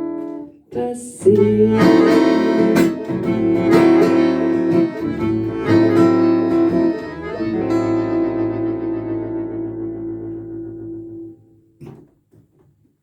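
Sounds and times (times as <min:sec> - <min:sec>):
strummed acoustic guitar: 0:00.0 - 0:11.5
accordion: 0:01.3 - 0:11.3
violin: 0:01.4 - 0:11.0.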